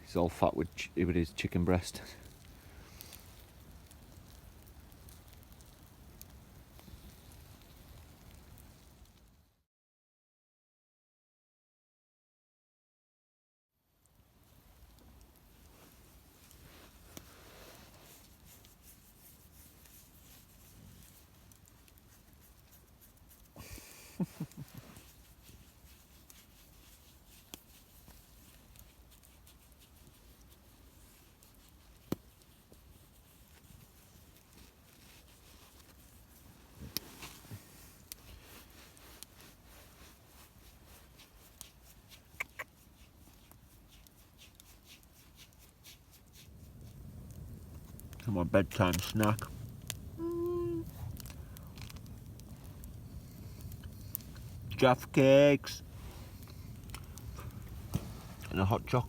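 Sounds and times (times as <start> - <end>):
faint campfire crackles: 0.0 - 9.7, 13.8 - 59.0
sharp fire pops: 0.1 - 9.3, 31.9 - 32.5, 46.8 - 59.0.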